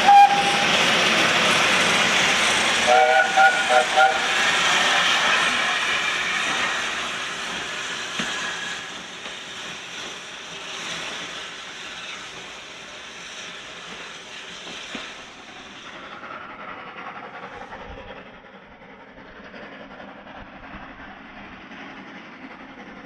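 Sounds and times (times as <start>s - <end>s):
train hiss: 0.0s - 23.0s
train wheels clattering on rails: 0.0s - 23.0s.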